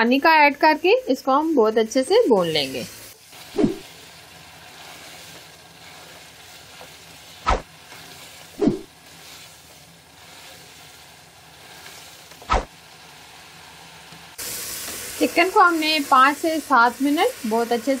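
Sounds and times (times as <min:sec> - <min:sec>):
chicken sizzling in a pot: 0:00.0 - 0:18.0.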